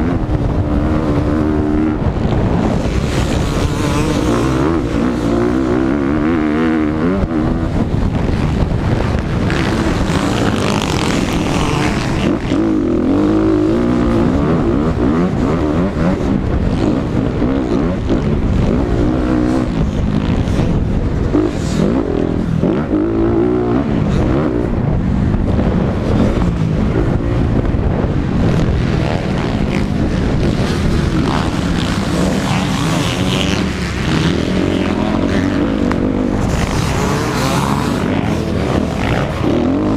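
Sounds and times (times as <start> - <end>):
dirt bike engine revving: 0.0 - 39.9
steady rushing noise: 0.0 - 39.9.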